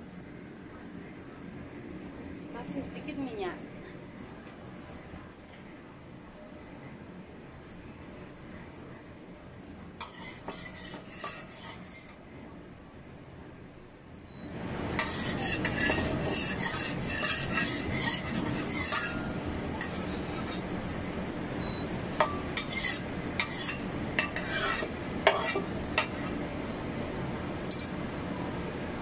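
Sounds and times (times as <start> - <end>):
batter sizzling in oil: 10.0 - 12.2, 14.7 - 20.8, 22.2 - 26.4
spatula scraping and tapping pan: 10.0 - 12.2, 14.9 - 20.6, 22.2 - 26.4, 27.7 - 28.0.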